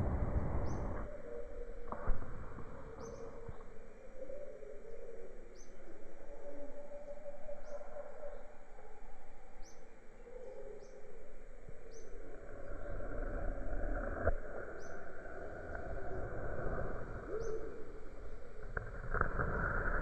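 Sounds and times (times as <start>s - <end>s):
low rumble: 0.0s - 4.1s
steady hiss and drone: 0.0s - 6.3s, 9.2s - 20.0s
bird chirping: 0.6s - 1.7s, 2.8s - 13.0s, 17.3s - 18.6s.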